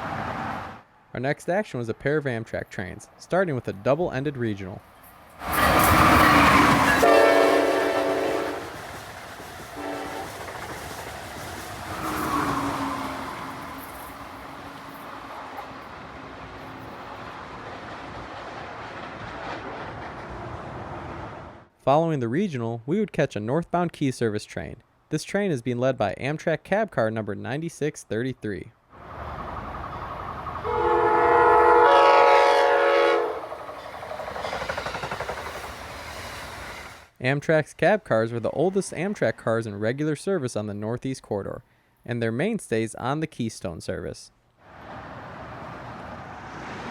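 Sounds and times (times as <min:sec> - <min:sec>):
train rushing past: 0:04.9 - 0:21.7, 0:29.0 - 0:37.1, 0:44.7 - 0:46.9
train horn blasts: 0:06.3 - 0:08.7, 0:09.8 - 0:10.4, 0:30.6 - 0:33.5.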